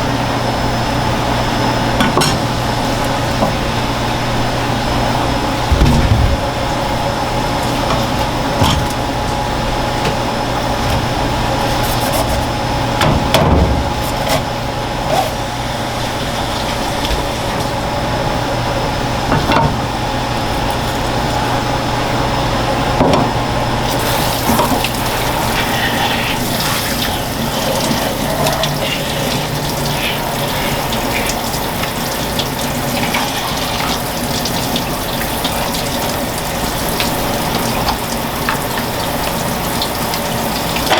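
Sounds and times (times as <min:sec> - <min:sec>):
sharp knocks: 0:05.7 - 0:06.9
tap water running into sink: 0:23.9 - 0:40.9.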